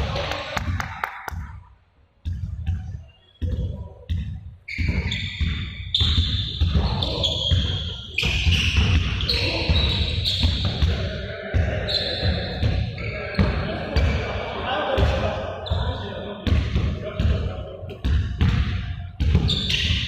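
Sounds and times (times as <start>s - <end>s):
echoing thuds: 2.2s - 20.0s
high squeaks: 4.7s - 10.9s, 11.8s - 13.7s, 19.4s - 20.0s.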